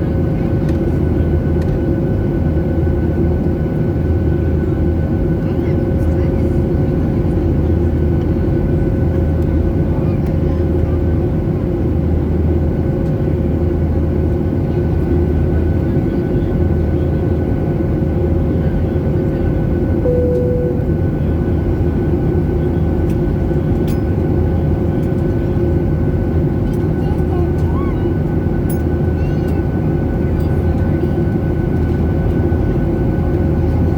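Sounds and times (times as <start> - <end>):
constant hum: 0.0 - 33.9
jet engine and airflow noise: 0.0 - 33.9
short tone: 20.0 - 21.4.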